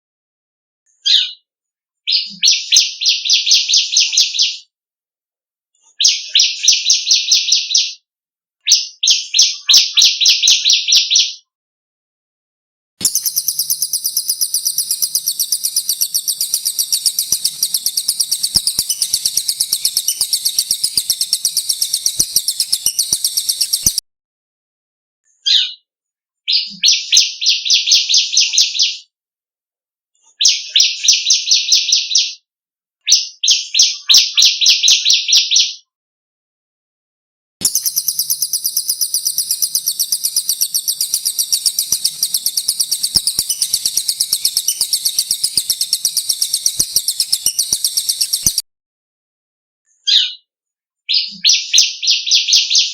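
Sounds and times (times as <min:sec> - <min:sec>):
bird rattling phrases: 0:13.0 - 0:24.0, 0:37.6 - 0:48.6
songbird high rapid trill: 0:13.0 - 0:24.0, 0:37.6 - 0:48.6.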